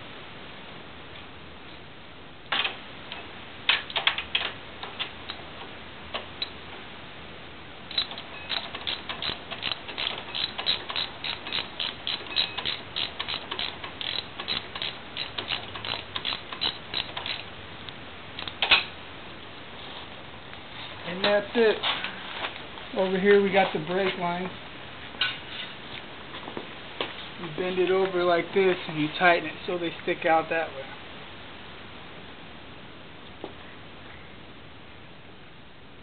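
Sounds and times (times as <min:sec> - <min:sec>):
ratchet wrench clicking: 0:07.9 - 0:17.5.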